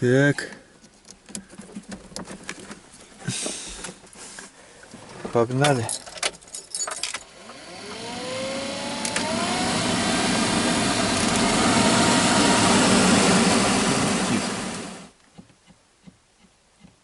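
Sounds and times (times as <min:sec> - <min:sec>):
blower motor whining: 0:07.2 - 0:15.1.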